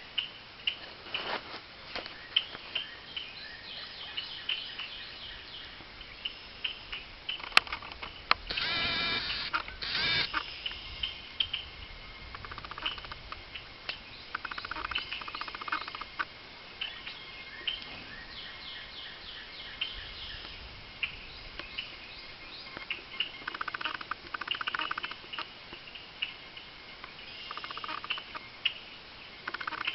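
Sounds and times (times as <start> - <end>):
bird chattering runs: 12.3 - 13.6, 14.3 - 16.3, 22.8 - 25.5, 27.3 - 28.4
high bird chirps: 14.2 - 16.2, 27.0 - 28.8.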